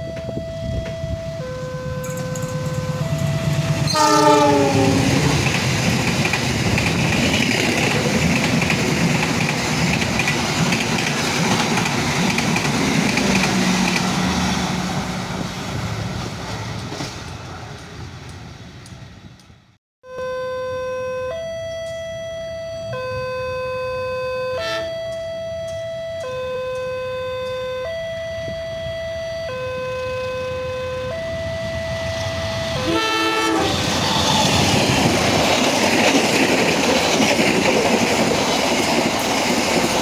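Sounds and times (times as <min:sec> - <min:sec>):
train wheels on rail: 0:00.1 - 0:19.7, 0:31.9 - 0:40.0
locomotive horn blast: 0:01.4 - 0:05.5, 0:22.9 - 0:25.4, 0:32.8 - 0:34.2.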